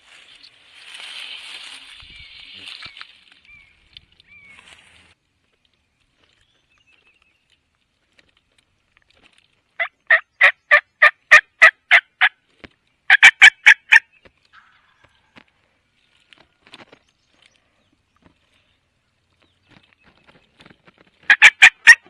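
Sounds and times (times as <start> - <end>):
turkey yelping: 9.8 - 12.3, 13.1 - 14.0, 21.3 - 22.0.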